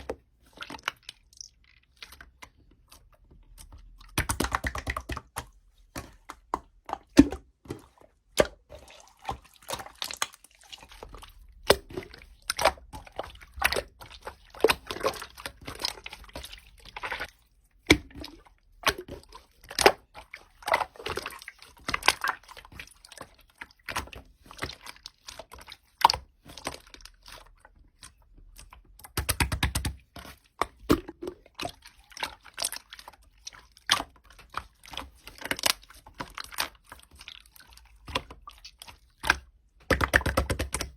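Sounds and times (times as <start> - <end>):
sticky wet clicks of slime: 0.0 - 7.5, 8.3 - 40.9
slime squelching stretch: 0.0 - 40.9.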